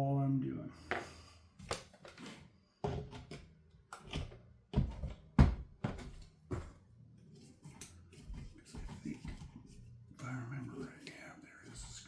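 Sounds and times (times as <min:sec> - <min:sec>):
tools knocking on a workbench: 0:02.8 - 0:06.8.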